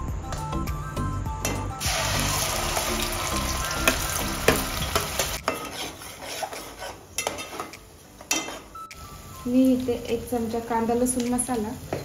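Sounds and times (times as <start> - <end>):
paste sizzling in hot oil: 1.8 - 9.8
metal spatula scraping pot: 3.8 - 8.8.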